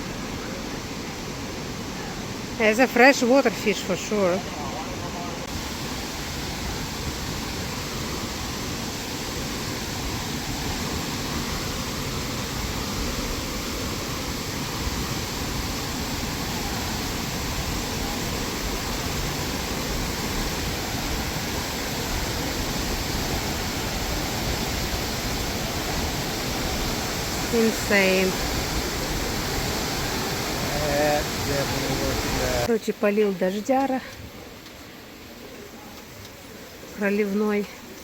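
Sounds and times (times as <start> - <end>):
waterfall rushing: 0.0 - 32.7.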